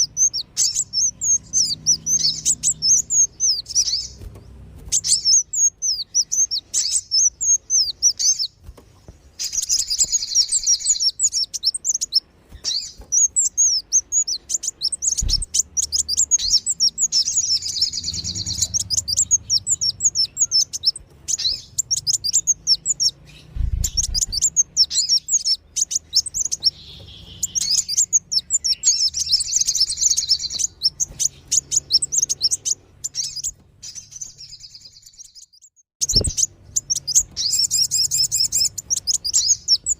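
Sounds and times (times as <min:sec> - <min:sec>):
sunbirds twittering: 0:00.0 - 0:39.9
faint low thuds: 0:15.1 - 0:15.6.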